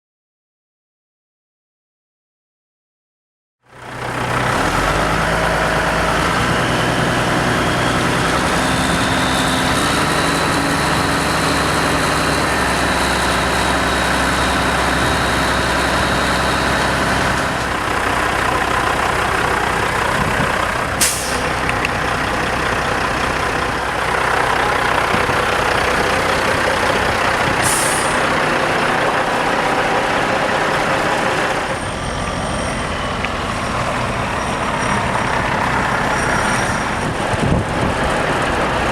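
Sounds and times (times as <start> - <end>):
diesel truck engine running: 3.7 - 38.9
air brake hisses: 21.0 - 21.5, 27.6 - 28.2.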